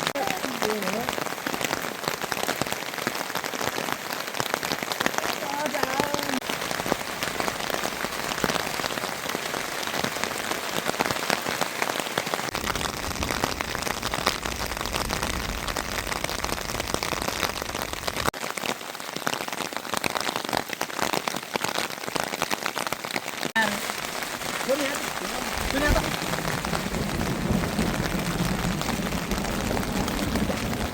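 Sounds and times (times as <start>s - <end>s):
rain patter: 0.0s - 30.9s
low rumble: 25.6s - 30.9s.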